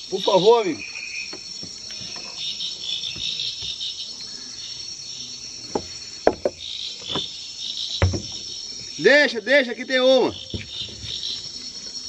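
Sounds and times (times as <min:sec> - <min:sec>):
insect chorus: 0:00.0 - 0:12.0
sharp knocks: 0:05.7 - 0:07.3, 0:08.0 - 0:08.4.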